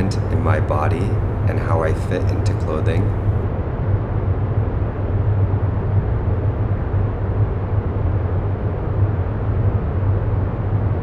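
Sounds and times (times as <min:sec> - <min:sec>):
deep rumbling noise: 0:00.0 - 0:04.0.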